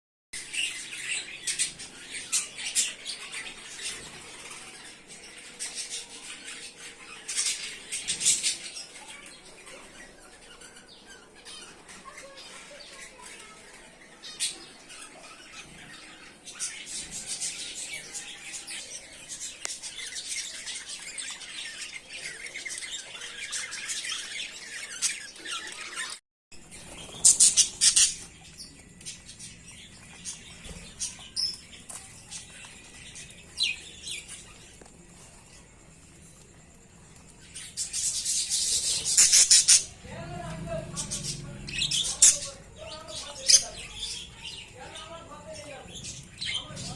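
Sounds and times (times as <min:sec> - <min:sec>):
budgerigars chattering: 0:26.8 - 0:28.7, 0:37.7 - 0:46.9.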